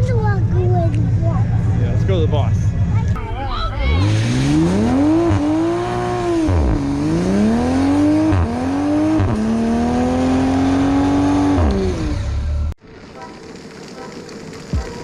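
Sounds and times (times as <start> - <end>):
car engine revving: 3.8 - 12.8.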